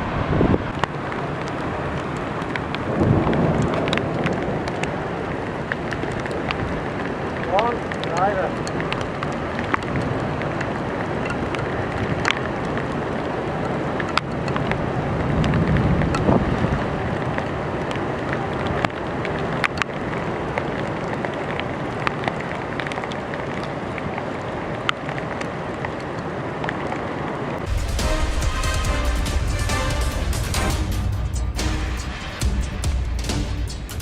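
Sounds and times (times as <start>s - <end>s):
wind: 0.0s - 34.0s
low rumble: 27.6s - 34.0s.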